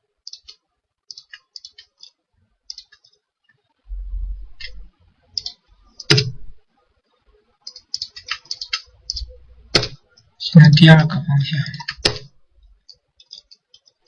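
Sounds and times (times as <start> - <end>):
computer mouse clicking: 0.2 - 3.2, 4.6 - 6.4, 7.6 - 10.0, 11.8 - 14.0
low rumble: 3.9 - 4.9.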